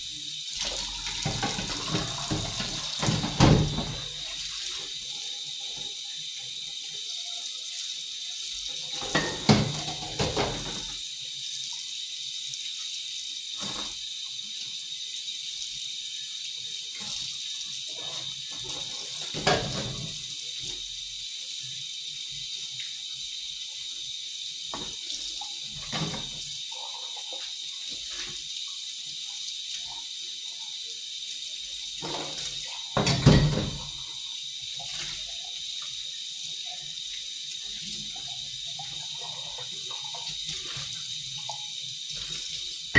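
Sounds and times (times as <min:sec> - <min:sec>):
water running from tap into sink: 0:00.0 - 0:42.9
knocks and clunks in sink: 0:01.2 - 0:04.2, 0:09.0 - 0:10.9, 0:19.4 - 0:20.1, 0:33.0 - 0:34.0.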